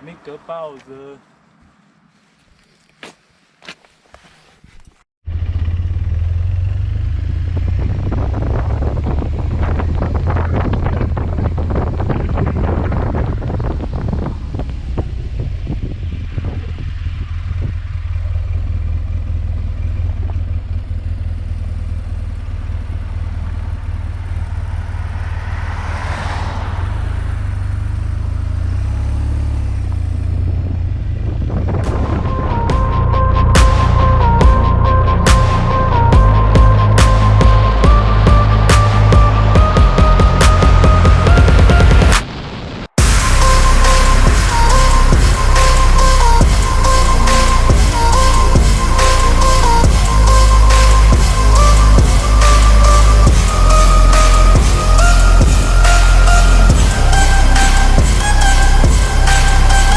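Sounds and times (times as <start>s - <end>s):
motorcycle engine at speed: 5.3s - 32.0s
wind noise: 7.3s - 18.3s, 31.0s - 59.9s.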